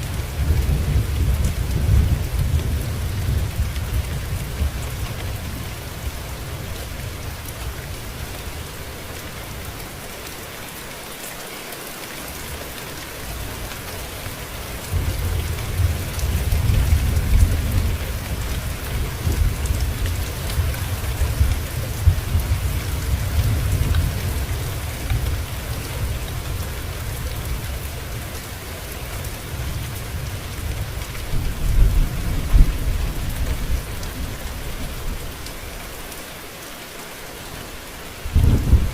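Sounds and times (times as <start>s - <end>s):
low rolling thunder: 0.0s - 7.4s, 14.7s - 28.3s, 29.2s - 35.4s, 38.2s - 38.9s
steady rain: 0.0s - 38.9s.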